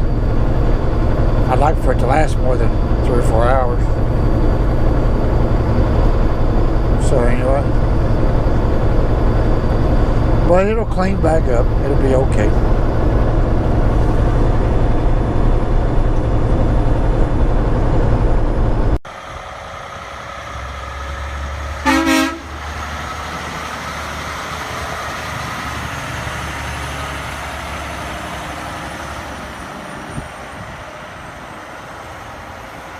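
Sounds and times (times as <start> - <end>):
truck engine and road noise: 0.0 - 32.9
vehicle horn toot: 21.8 - 22.5.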